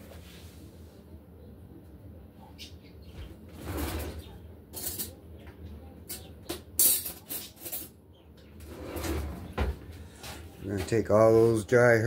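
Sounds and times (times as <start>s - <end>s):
kitchen containers and utensils rattling: 6.8s - 8.0s.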